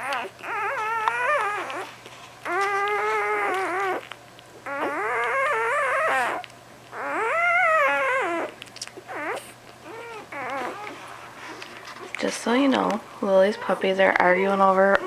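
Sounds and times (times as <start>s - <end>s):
puppy crying: 0.0s - 12.2s, 13.4s - 15.0s.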